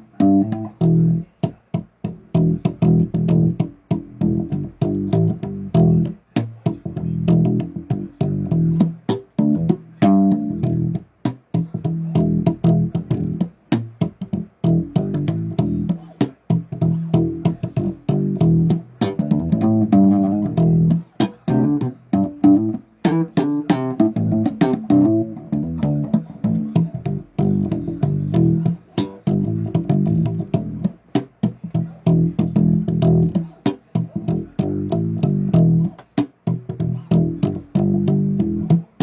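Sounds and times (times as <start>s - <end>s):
bass guitar riffing: 0.0s - 39.0s.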